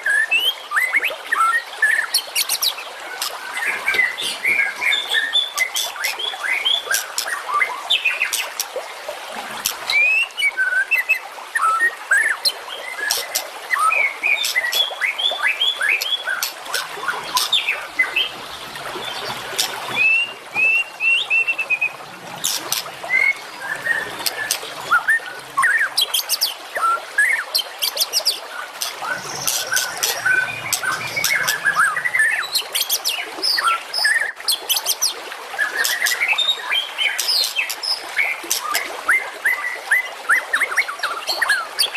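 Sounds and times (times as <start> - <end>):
songbirds chirping and singing: 1.9 - 8.6, 11.6 - 34.3.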